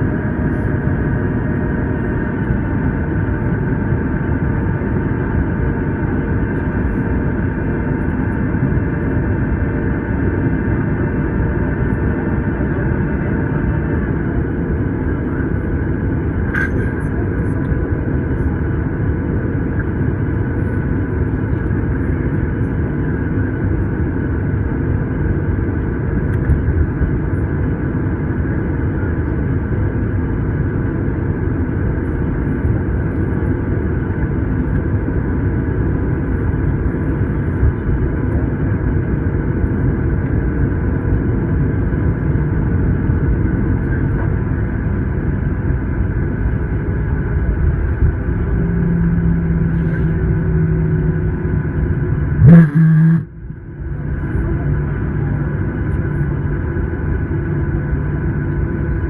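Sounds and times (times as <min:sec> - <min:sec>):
airliner cabin rumble: 0:00.0 - 0:59.0
steady tones: 0:52.4 - 0:53.3.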